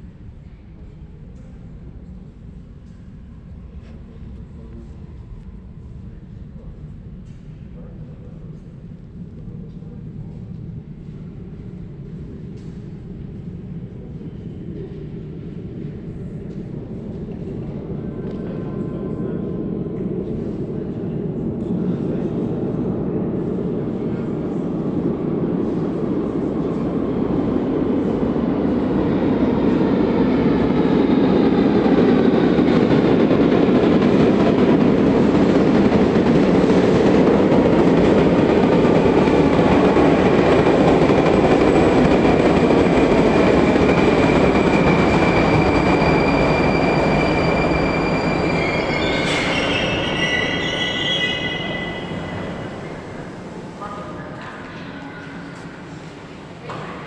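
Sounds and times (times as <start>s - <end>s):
train traction drive whine: 24.8s - 53.9s
wheels rumbling on rail: 24.9s - 53.9s
high wheel squeal: 44.0s - 53.3s.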